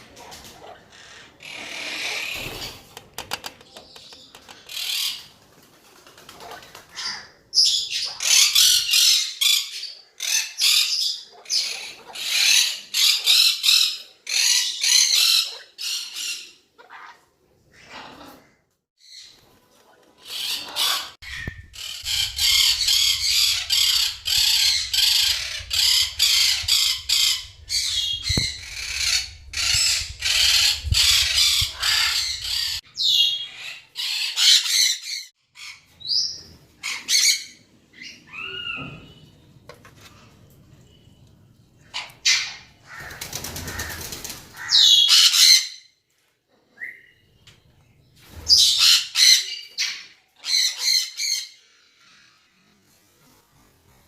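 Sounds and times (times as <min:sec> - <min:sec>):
parrots squawking: 0:00.2 - 0:02.9, 0:06.8 - 0:18.5, 0:20.2 - 0:39.0, 0:41.9 - 0:45.9, 0:48.5 - 0:52.5.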